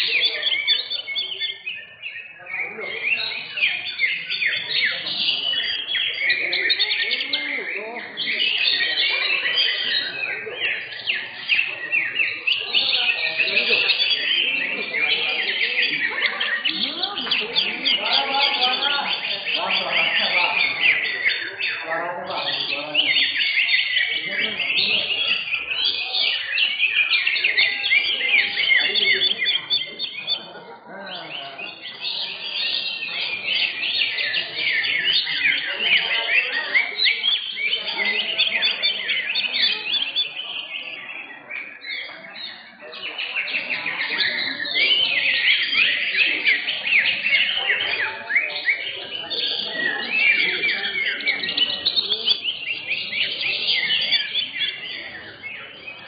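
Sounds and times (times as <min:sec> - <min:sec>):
birds singing rapid chirps: 0:00.0 - 0:56.0.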